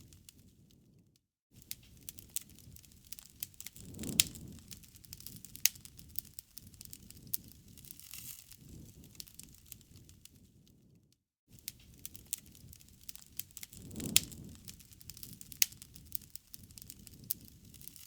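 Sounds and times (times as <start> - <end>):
campfire crackling and popping: 1.6 - 10.7, 11.6 - 18.0.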